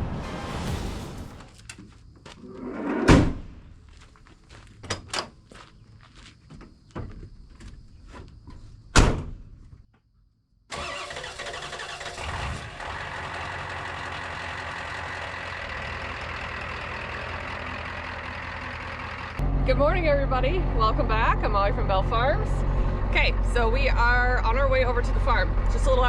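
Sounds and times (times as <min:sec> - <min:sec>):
vehicle door slamming: 0:09.0 - 0:09.4
vehicle engine running: 0:11.8 - 0:26.0.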